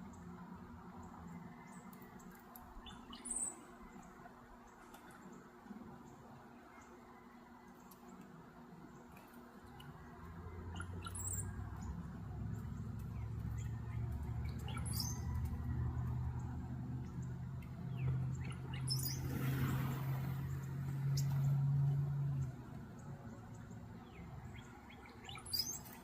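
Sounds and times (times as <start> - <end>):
low droning hum: 0.0 - 26.0
high bird chirps: 10.7 - 11.6, 13.2 - 15.4, 17.9 - 19.3, 24.0 - 26.0.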